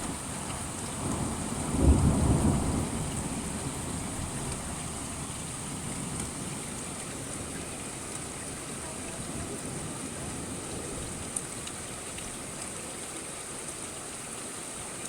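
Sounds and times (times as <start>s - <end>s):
thunder clap and rumble: 0.0s - 7.6s
steady rain falling: 0.0s - 15.0s.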